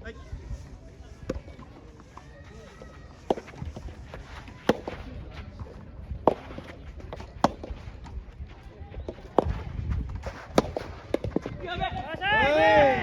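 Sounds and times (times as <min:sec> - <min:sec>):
tennis ball struck: 0:03.2 - 0:08.2, 0:09.1 - 0:11.6.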